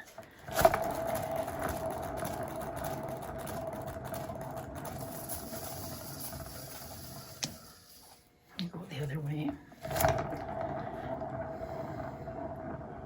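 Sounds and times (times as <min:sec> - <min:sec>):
turntable whirring: 0:00.0 - 0:08.1.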